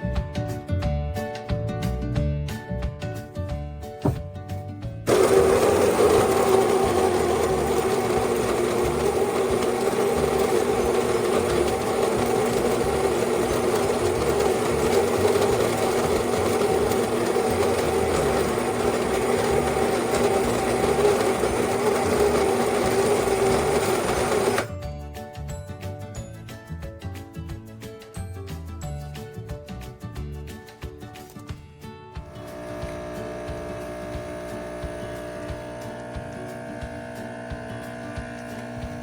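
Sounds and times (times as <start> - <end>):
espresso machine pump buzzing: 5.1 - 24.7, 32.2 - 39.0.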